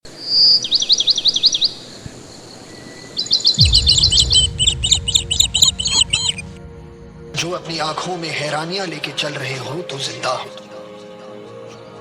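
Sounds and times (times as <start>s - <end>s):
deep low sound: 3.6s - 8.6s.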